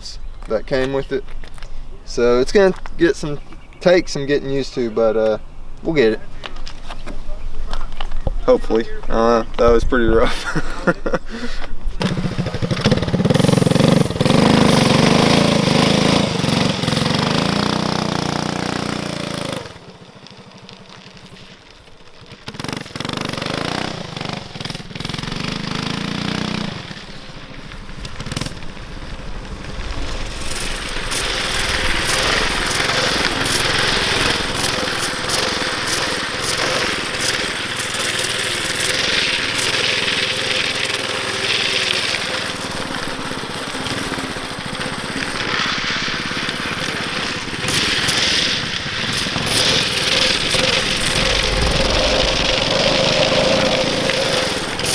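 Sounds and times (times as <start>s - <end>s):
small engine revving: 12.0s - 54.9s
rushing noise: 27.0s - 39.5s, 49.1s - 54.9s.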